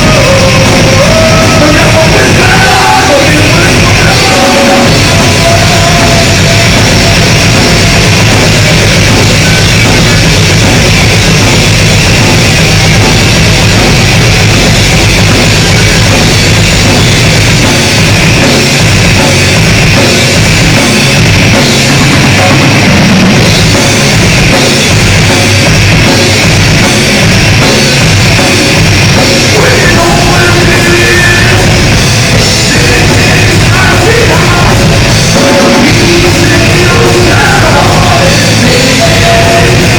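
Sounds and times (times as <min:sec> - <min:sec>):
distorted electric guitars: 0:00.0 - 0:39.9
drum kit: 0:00.0 - 0:39.9.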